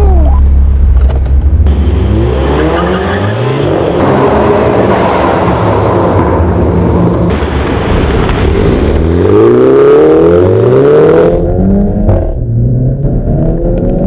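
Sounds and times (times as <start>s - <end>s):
loud exhaust noise: 1.6s - 11.6s
car engine revving and accelerating: 1.6s - 14.0s.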